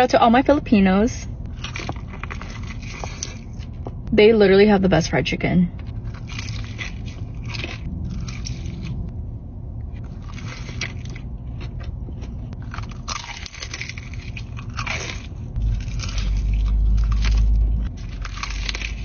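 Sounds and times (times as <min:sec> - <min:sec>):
steady low hum: 0:00.0 - 0:19.0
crunchy chewing: 0:01.4 - 0:03.8, 0:05.9 - 0:09.1, 0:10.0 - 0:19.0.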